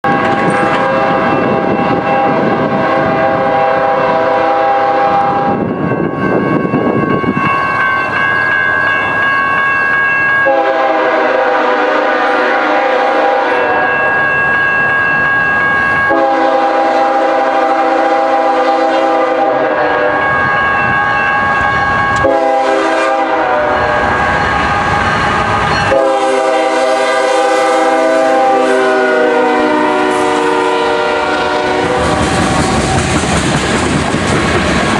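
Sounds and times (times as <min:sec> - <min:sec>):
locomotive air horn blasts: 0:00.0 - 0:05.7, 0:10.4 - 0:14.0, 0:16.1 - 0:20.3, 0:22.2 - 0:32.8
train rumble: 0:00.0 - 0:34.9.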